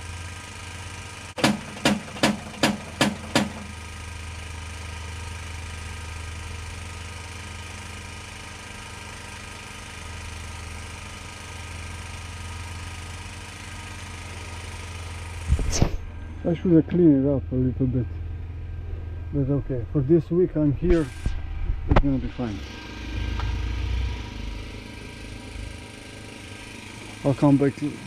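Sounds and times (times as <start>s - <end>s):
engine-like hum: 0.0s - 28.0s.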